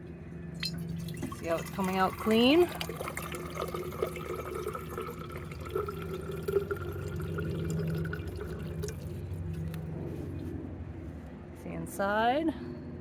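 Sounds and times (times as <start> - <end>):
faint steady hum: 0.0 - 13.0
water trickling into container: 0.6 - 9.8.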